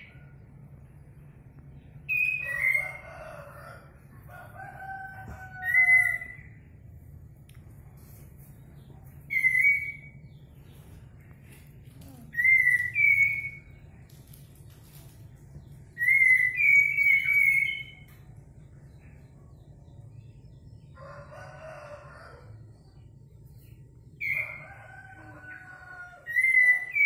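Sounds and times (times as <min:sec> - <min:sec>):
low steady hum: 0:00.0 - 0:27.0
bird whistled calls: 0:02.1 - 0:03.0, 0:05.6 - 0:06.6, 0:09.3 - 0:10.2, 0:12.3 - 0:13.8, 0:16.0 - 0:18.1, 0:26.2 - 0:27.0
rooster crowing: 0:02.4 - 0:06.6, 0:21.0 - 0:22.7, 0:24.2 - 0:27.0.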